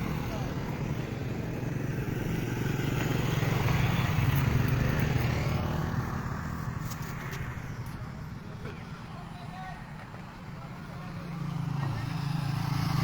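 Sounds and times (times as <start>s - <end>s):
vehicle engine passing by: 10.7s - 13.0s.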